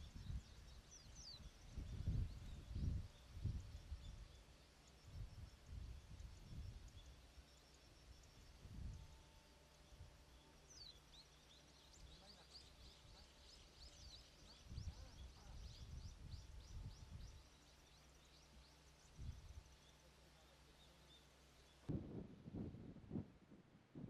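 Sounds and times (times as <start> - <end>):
wind rumble on microphone: 0.0 - 7.2, 8.0 - 10.2, 12.8 - 17.6, 19.0 - 19.8, 21.9 - 24.0
small birds chirping: 0.0 - 21.9.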